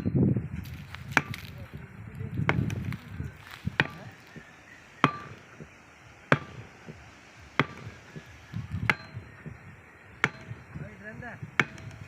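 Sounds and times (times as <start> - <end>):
low rumbling: 0.0 - 12.0
sharp strikes: 3.7 - 4.3, 5.0 - 9.2.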